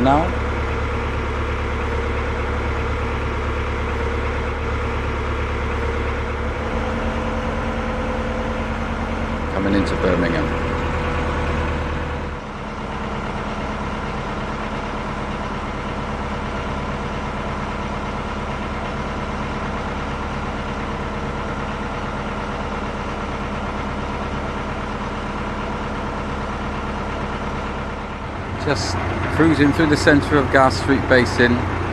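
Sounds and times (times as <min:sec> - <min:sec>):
boat engine chugging: 0:00.0 - 0:31.9.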